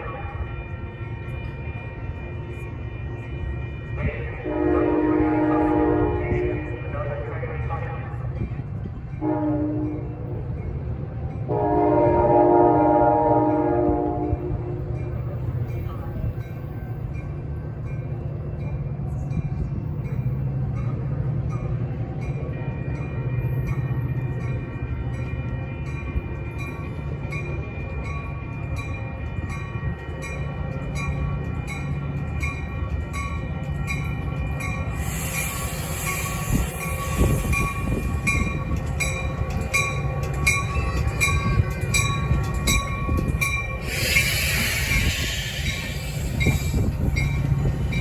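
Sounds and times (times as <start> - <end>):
train rumbling: 0.0 - 48.0
hiss: 35.0 - 37.5, 43.8 - 47.2.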